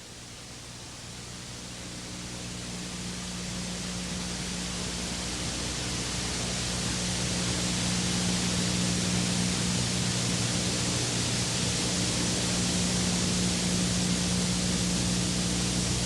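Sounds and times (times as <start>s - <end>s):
steady rushing hiss: 1.9s - 16.0s.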